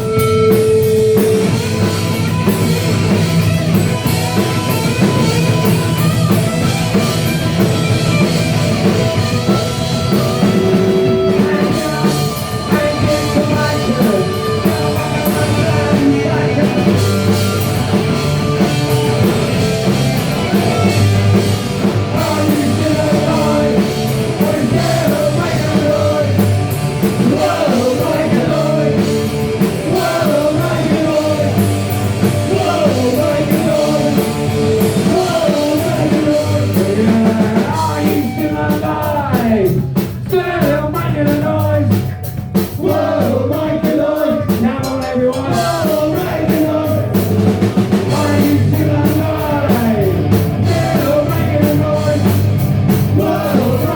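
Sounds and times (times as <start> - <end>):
punk rock band playing: 0.0 - 53.9
person singing: 10.1 - 17.1, 22.1 - 26.4, 27.1 - 31.7, 32.3 - 42.0, 42.8 - 47.3, 48.1 - 52.4, 53.1 - 53.9.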